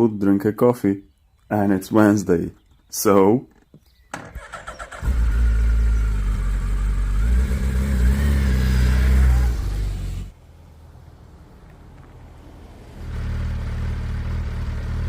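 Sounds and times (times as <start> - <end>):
motorcycle engine running: 4.2 - 10.3, 13.0 - 15.0.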